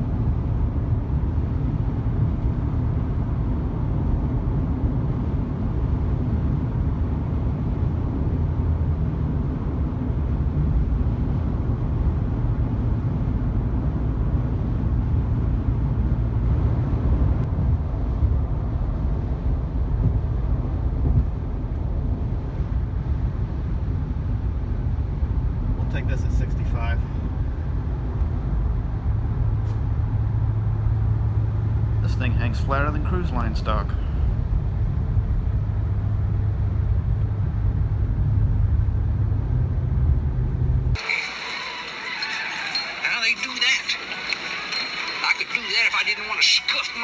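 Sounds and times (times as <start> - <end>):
minivan driving at road speed: 0.0 - 47.0.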